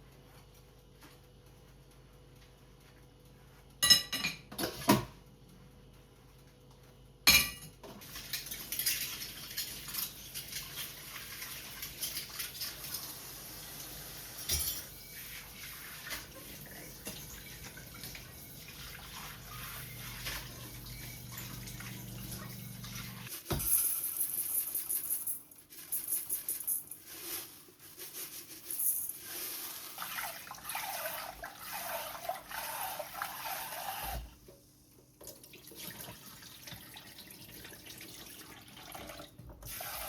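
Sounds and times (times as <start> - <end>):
dishes or cutlery clinking: 3.8 - 5.0, 7.3 - 10.1, 14.4 - 15.0.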